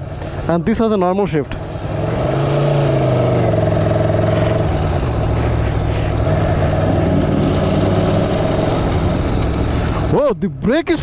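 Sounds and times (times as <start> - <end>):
motorcycle engine running: 1.6 - 10.2.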